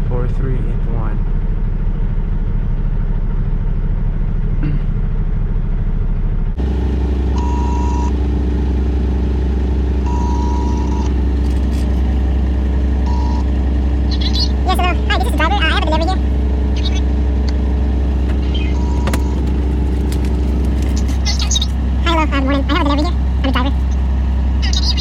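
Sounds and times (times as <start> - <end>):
diesel truck engine idling: 0.0 - 25.0
high beeping tone: 7.4 - 8.1, 10.1 - 11.1, 13.0 - 17.6, 18.3 - 19.4.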